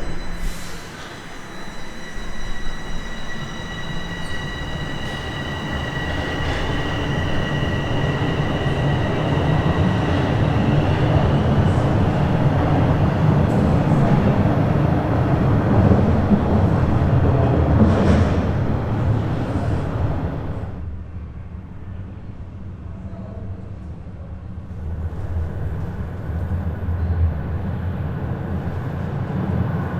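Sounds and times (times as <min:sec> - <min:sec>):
faint high whine: 0:00.0 - 0:12.4
subway train pulling away: 0:00.0 - 0:29.9.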